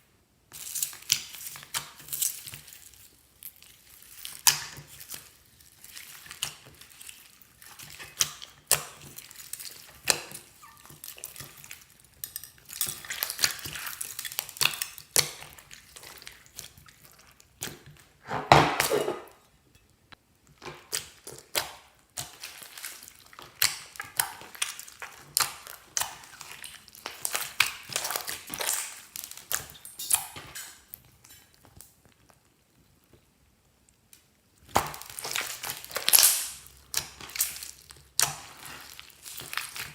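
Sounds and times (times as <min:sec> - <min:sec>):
slime squelch: 0:00.5 - 0:18.3, 0:20.0 - 0:39.9
slime clicking and popping: 0:34.7 - 0:38.8.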